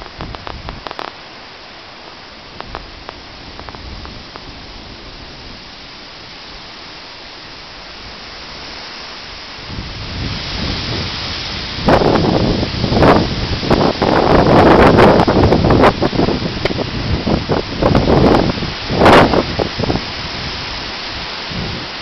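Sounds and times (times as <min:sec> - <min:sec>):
light ticks: 0:00.0 - 0:01.2, 0:02.6 - 0:04.5
rain through vegetation: 0:00.0 - 0:22.0
stormy wind: 0:00.0 - 0:22.0.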